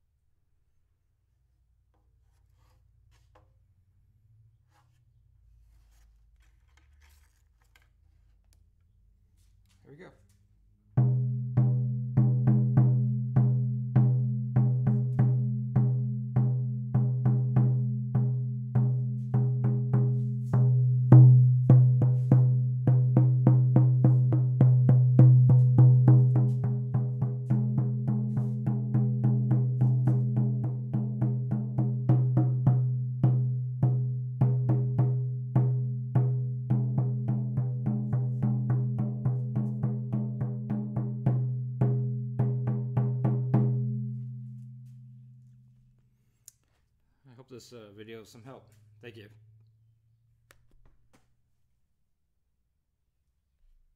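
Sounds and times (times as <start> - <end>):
frame drum beating: 11.0 - 44.4.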